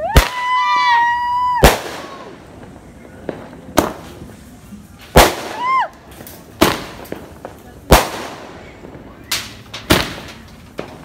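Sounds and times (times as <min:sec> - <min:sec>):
firework whistle: 0:00.0 - 0:02.4
firework bangs: 0:00.0 - 0:11.0.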